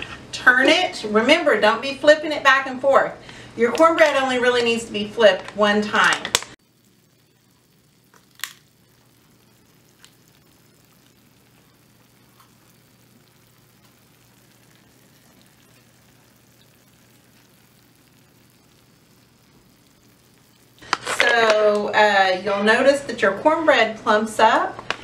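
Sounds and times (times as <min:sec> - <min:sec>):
batter sizzling in hot oil: 0:00.0 - 0:25.0
oil popping: 0:03.2 - 0:22.1, 0:24.8 - 0:25.0.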